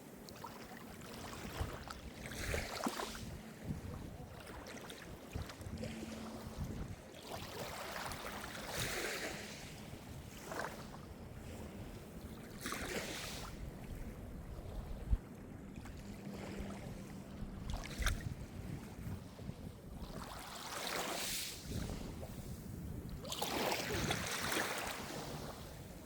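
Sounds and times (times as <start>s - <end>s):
waves washing onto shore: 0.0s - 13.8s, 20.0s - 26.0s
wind buffeting microphone: 1.3s - 20.6s, 21.3s - 26.0s.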